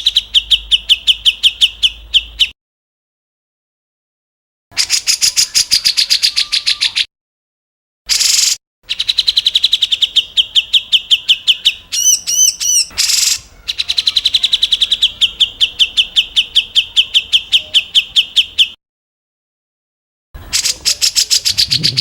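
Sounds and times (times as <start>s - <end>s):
bird whistled notes: 8.1s - 18.8s, 20.5s - 22.0s
harsh bird call burst: 20.5s - 22.0s
songbird rapid trills: 20.6s - 22.0s.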